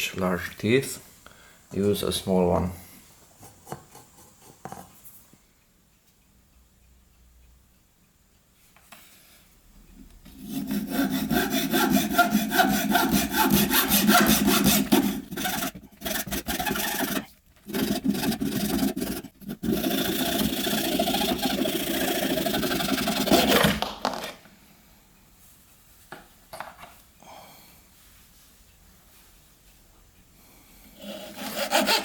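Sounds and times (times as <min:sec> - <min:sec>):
hand saw cutting hardwood: 0:10.3 - 0:23.9, 0:31.0 - 0:32.0.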